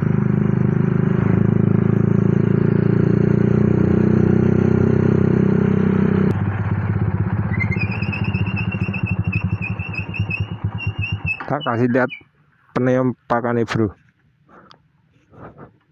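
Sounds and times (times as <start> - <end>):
motorcycle engine idling: 6.3 - 12.2
high chirping: 7.5 - 12.3.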